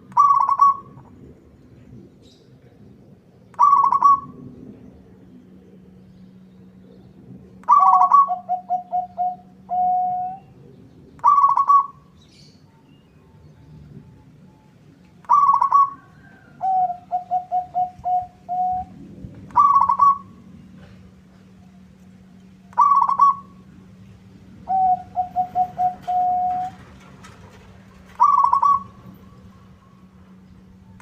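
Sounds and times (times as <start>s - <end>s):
dove cooing: 0.0s - 1.0s, 3.6s - 4.4s, 7.6s - 12.5s, 15.2s - 21.0s, 22.7s - 23.7s, 24.6s - 27.1s, 28.0s - 29.4s
faint low hum: 0.0s - 31.0s.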